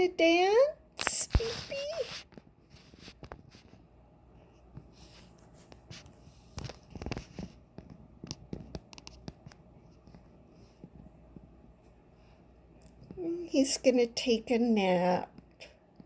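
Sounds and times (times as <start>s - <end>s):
rustling and scratchy ticks: 1.0s - 3.9s, 4.7s - 13.2s.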